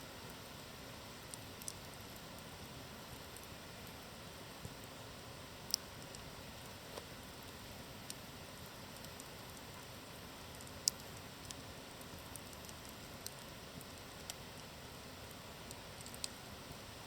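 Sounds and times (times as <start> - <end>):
campfire crackling and popping: 5.7 - 14.7.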